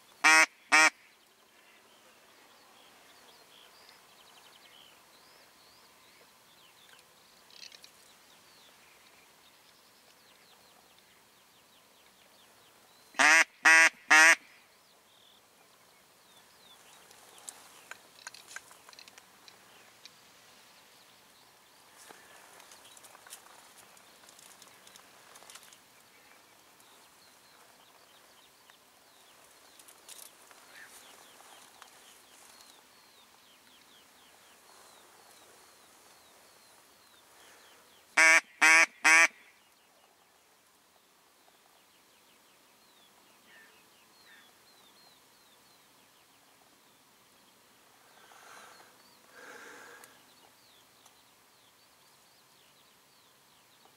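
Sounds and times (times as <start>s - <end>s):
faint birdsong: 0.0s - 53.9s
duck quacking: 0.2s - 1.0s, 13.2s - 14.4s, 38.2s - 39.4s.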